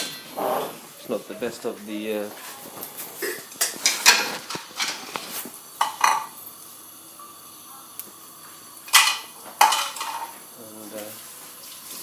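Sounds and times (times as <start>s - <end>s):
pots and utensils clattering: 0.0s - 0.8s, 2.3s - 6.4s, 8.8s - 11.1s.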